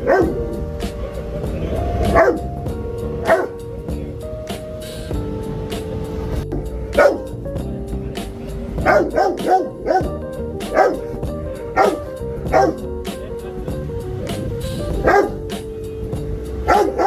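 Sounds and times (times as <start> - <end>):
dog barking: 0.0 - 2.5, 3.1 - 3.6, 7.0 - 7.3, 8.7 - 12.9, 14.4 - 15.6, 16.5 - 17.0
background music: 0.0 - 17.0.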